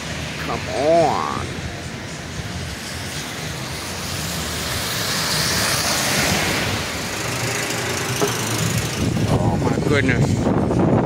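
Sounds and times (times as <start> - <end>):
strong gusting wind: 0.0 - 11.0
wind buffeting microphone: 8.4 - 11.0.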